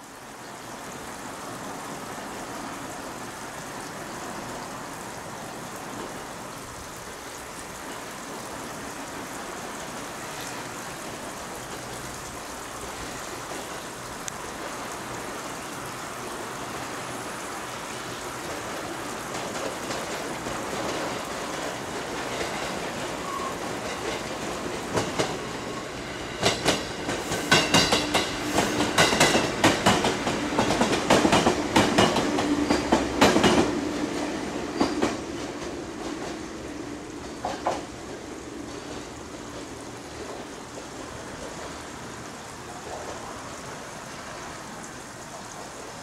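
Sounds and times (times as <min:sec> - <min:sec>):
electric train running noise: 0:18.5 - 0:42.0.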